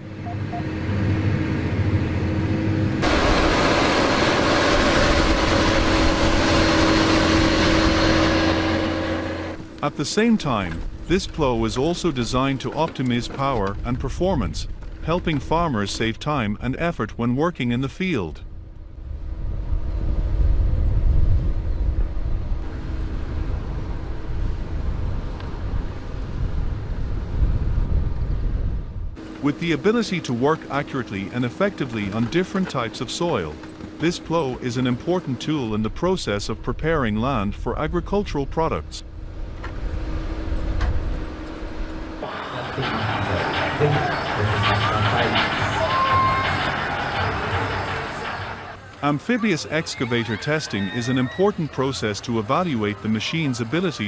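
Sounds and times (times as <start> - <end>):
rushing noise: 0.0 - 13.7, 39.0 - 49.0
tractor engine running: 0.0 - 16.4, 29.2 - 37.7, 39.0 - 54.0.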